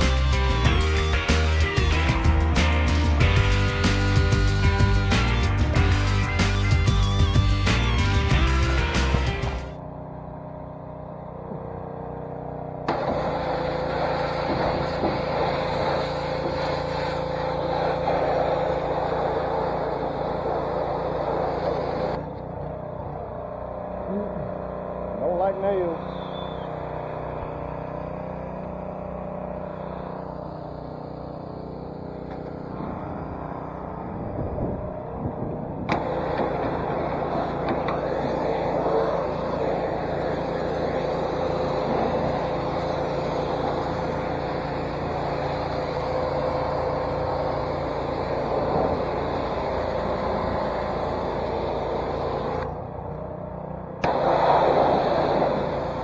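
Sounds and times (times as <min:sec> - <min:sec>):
pressure washer spray hiss: 0:00.0 - 0:09.7, 0:12.9 - 0:22.2, 0:36.0 - 0:52.6, 0:54.0 - 0:56.0
music: 0:00.0 - 0:09.8
small engine running: 0:00.0 - 0:56.0.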